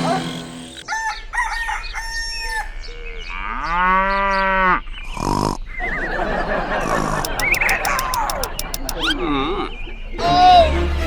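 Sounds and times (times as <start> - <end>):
short chirping: 7.3 - 9.2.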